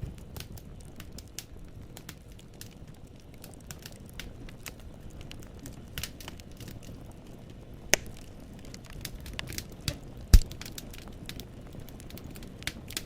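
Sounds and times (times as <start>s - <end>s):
low rumble of flame: 0.0s - 13.0s
wood fire crackling: 0.0s - 13.0s
logs snapping and popping: 7.9s - 11.4s.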